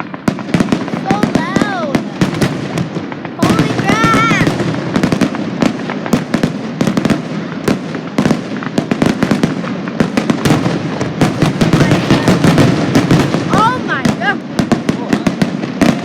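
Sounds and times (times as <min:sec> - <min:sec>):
fireworks bangs and crackles: 0:00.0 - 0:16.0
fireworks rumble: 0:00.0 - 0:16.0.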